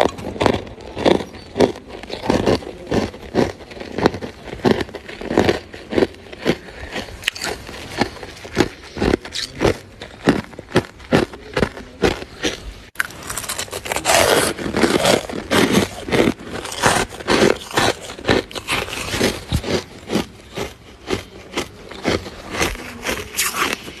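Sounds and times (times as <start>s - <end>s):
freezer frost scraped and crunched: 12.9s - 20.2s, 21.6s - 24.0s.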